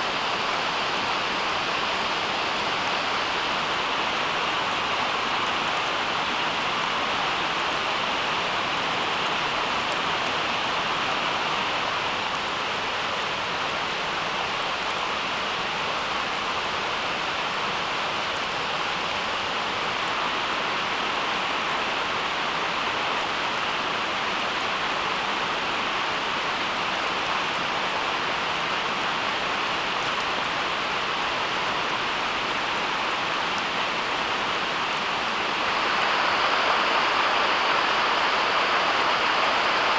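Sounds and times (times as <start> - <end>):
steady rushing noise: 35.5 - 39.9.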